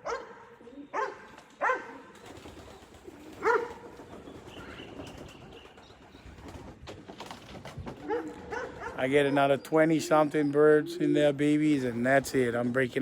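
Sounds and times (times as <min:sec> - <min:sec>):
animal yelping calls: 0:08.0 - 0:09.4.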